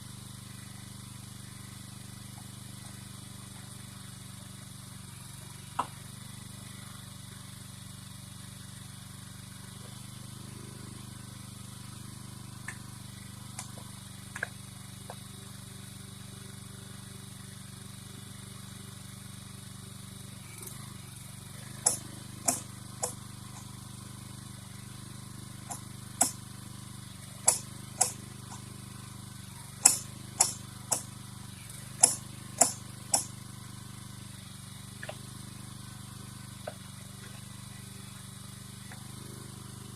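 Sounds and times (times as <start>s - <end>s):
small engine running: 0.0s - 39.9s
sharp clicks and clanks: 21.8s - 23.8s, 25.7s - 26.4s, 27.3s - 28.7s, 29.8s - 31.2s, 31.9s - 33.3s, 35.0s - 35.2s.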